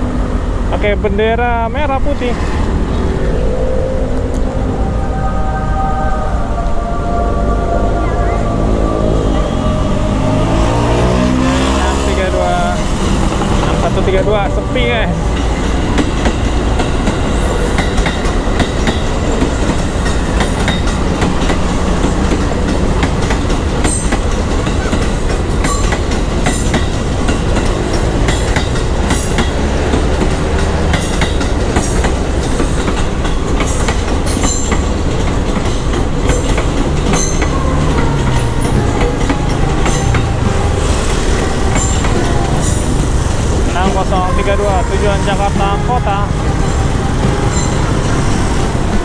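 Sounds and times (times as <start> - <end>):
electric train rumbling past: 0.0 - 49.0
wheels clacking over rail joints: 11.0 - 49.0.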